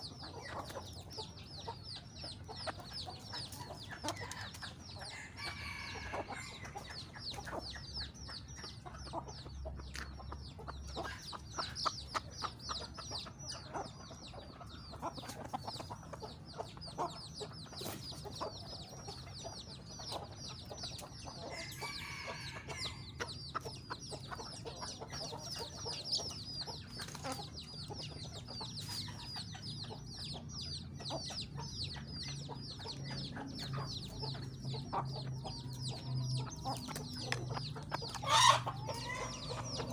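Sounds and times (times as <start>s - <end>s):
chickens clucking: 0.0s - 39.9s
chicks peeping: 0.0s - 39.9s.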